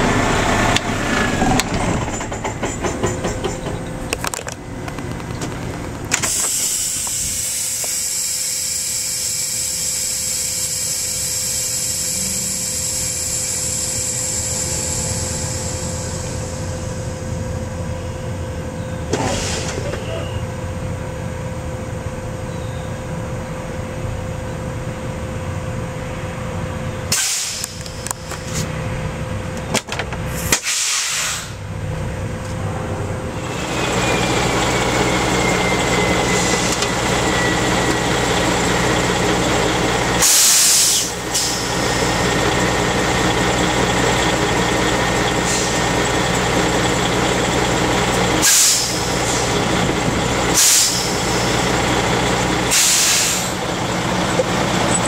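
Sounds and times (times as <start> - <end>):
thin falling whine: 0.0 - 19.2, 32.4 - 55.0
diesel engine idling: 0.0 - 55.0
air brake hiss: 6.2 - 16.3, 19.2 - 20.0, 27.1 - 27.8, 30.3 - 31.7, 36.2 - 36.8, 40.2 - 42.0, 45.4 - 45.8, 48.4 - 49.5, 50.5 - 51.6, 52.7 - 53.6.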